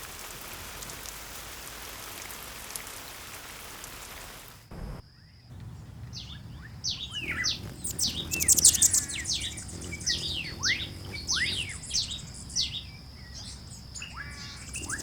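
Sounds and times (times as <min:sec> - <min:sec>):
descending whistled bird chirps: 0:05.1 - 0:15.0
buzzy bird trill: 0:05.5 - 0:15.0.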